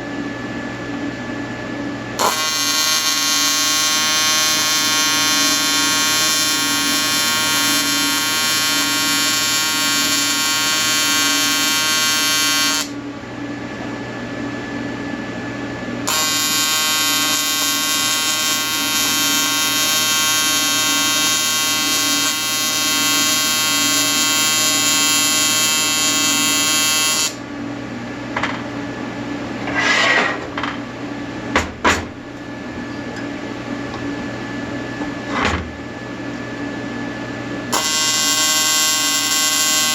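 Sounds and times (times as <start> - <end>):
welding arc buzzing: 2.2 - 13.0, 16.1 - 27.4, 37.7 - 39.9
brief scraping swish: 29.6 - 30.4.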